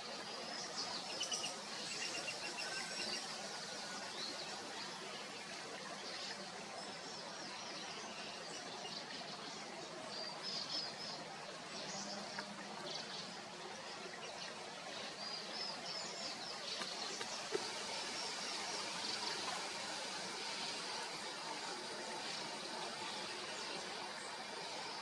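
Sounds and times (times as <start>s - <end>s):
steady outdoor hiss: 0.0s - 25.0s
birds chirping: 11.8s - 25.0s.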